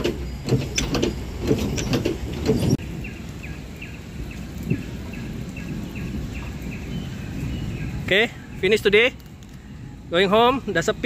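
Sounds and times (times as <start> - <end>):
sharp clicks and knocks: 0.0 - 2.8
bird chirping: 1.8 - 8.9
steady low rumble: 2.2 - 11.0.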